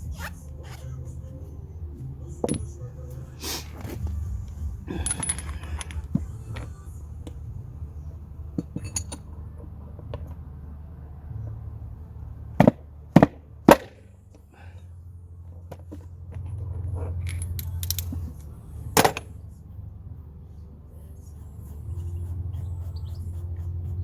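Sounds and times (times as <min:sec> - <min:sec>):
tools handled: 0:03.5 - 0:07.4, 0:08.5 - 0:10.4, 0:15.6 - 0:19.4
small metal parts clinking: 0:03.8 - 0:07.5, 0:08.4 - 0:10.4, 0:15.6 - 0:19.4.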